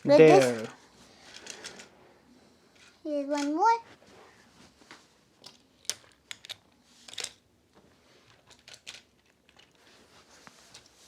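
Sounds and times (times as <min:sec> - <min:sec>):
toy cars clicking and clattering: 0:00.3 - 0:00.7, 0:02.8 - 0:03.6, 0:05.4 - 0:07.4, 0:08.2 - 0:09.8.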